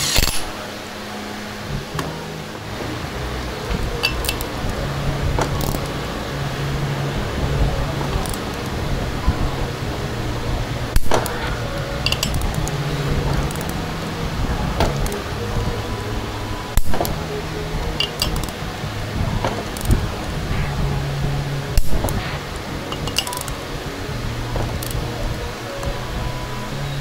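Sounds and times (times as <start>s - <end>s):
steady low hum: 0.0s - 27.0s
metal tools knocking: 4.0s - 4.5s, 12.0s - 12.7s, 18.0s - 18.5s, 22.9s - 23.5s.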